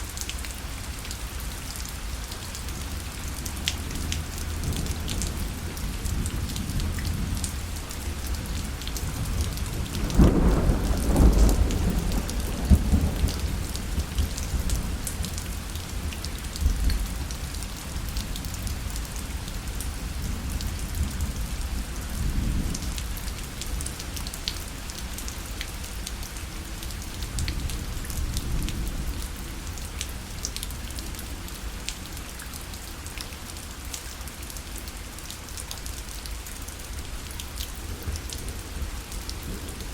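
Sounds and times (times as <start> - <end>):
rain pattering on a parasol: 0.0 - 39.9
thunder rumbling: 4.6 - 15.4.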